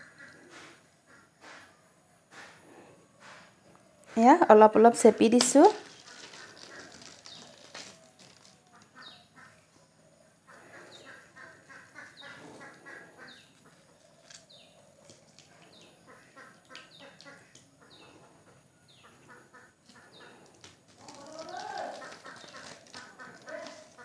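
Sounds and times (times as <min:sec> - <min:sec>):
faint bird calls: 0:05.8 - 0:24.0.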